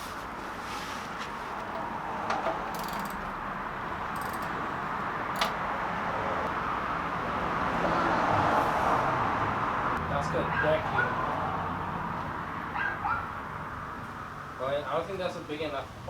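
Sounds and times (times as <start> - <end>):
metallic clicks and jingles of tools: 4.1 - 4.6.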